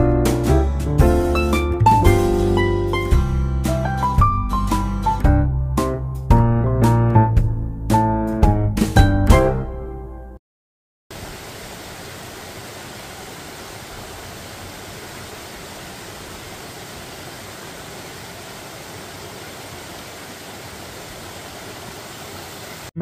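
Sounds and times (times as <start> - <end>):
stream flowing over rocks: 11.1 - 23.0.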